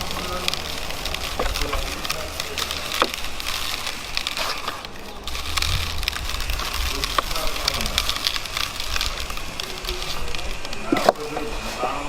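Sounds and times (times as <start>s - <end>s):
chicken sizzling on a grill: 0.0s - 12.0s
low steady rumble: 5.2s - 10.7s.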